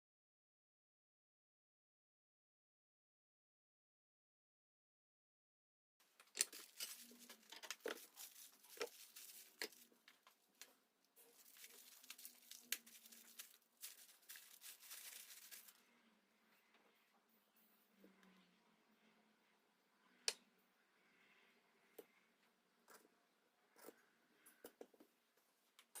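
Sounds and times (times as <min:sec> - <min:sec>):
wrapping crinkling and tearing: 0:06.2 - 0:10.0, 0:11.3 - 0:15.8.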